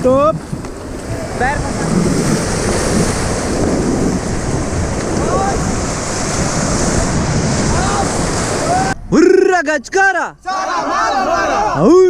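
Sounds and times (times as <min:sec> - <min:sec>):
wind buffeting microphone: 0:00.0 - 0:09.2
river rapids rushing: 0:00.9 - 0:09.0
faint shouts: 0:07.7 - 0:09.0, 0:10.4 - 0:12.0.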